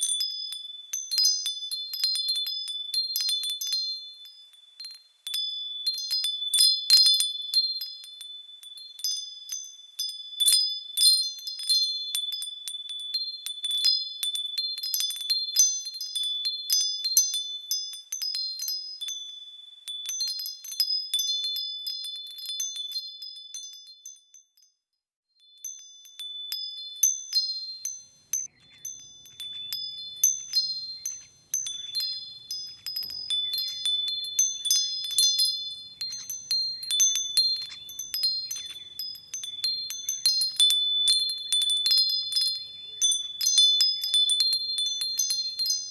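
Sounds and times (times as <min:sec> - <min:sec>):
continuous high tone: 0:25.4 - 0:45.9
small birds chirping: 0:25.4 - 0:45.9.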